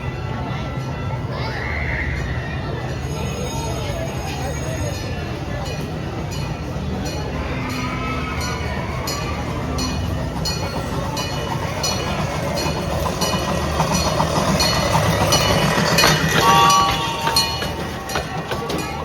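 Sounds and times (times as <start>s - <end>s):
miniature steam train rumbling: 0.0s - 19.0s
high squeal: 7.2s - 18.2s
wheel clicks on track: 9.2s - 19.0s.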